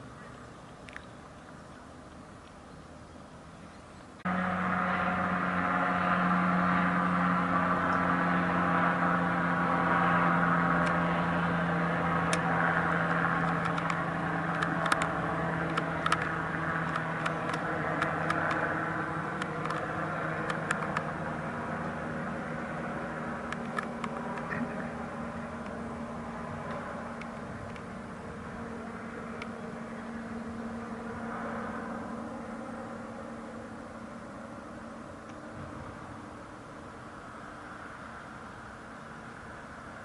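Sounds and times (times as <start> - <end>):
engine drone: 0.0 - 40.0
sharp clicks: 12.3 - 18.7, 19.4 - 21.1, 23.5 - 24.6.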